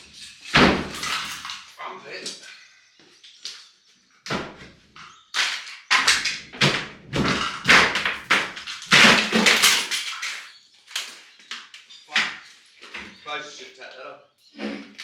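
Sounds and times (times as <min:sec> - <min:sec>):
heavy knocks and crashing: 0:00.4 - 0:01.6, 0:05.9 - 0:10.2.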